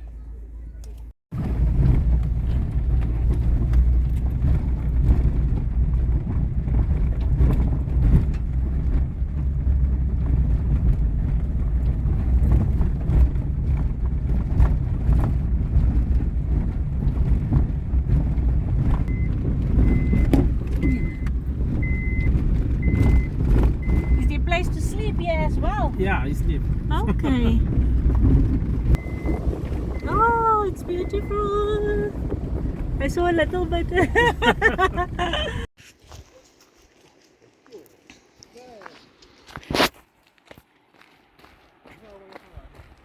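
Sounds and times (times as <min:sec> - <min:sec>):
vehicle engine rumbling: 0:00.0 - 0:35.8
reversing beeper: 0:19.1 - 0:24.4, 0:29.0 - 0:31.8.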